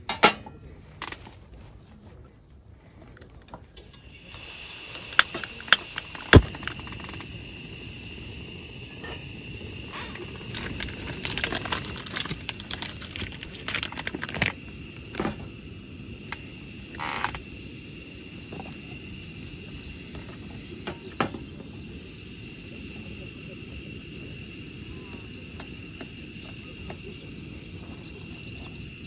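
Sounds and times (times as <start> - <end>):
clicks and crackles: 2.9 - 7.4, 9.9 - 15.3
crickets chirring: 3.9 - 29.0.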